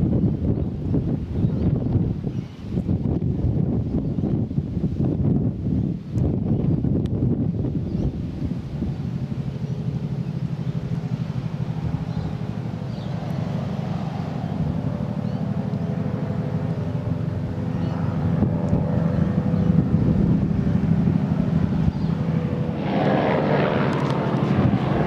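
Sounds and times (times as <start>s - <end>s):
helicopter rotor beating: 7.4s - 25.0s
helicopter engine tone: 8.6s - 25.0s.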